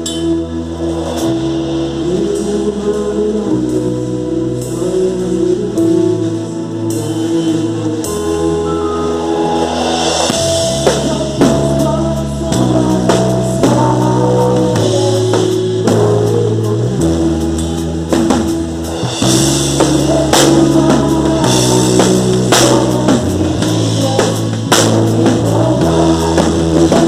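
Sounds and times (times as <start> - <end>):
worship band sustained chords: 0.0 - 27.0
drum kit hits: 8.1 - 27.0
cymbal swell: 8.6 - 11.4.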